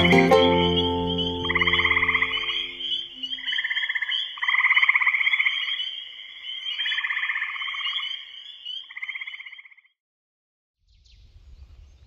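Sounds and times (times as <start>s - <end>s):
steady high trilling: 0.0s - 3.2s
frogs calling in pulsed trills: 0.0s - 10.0s.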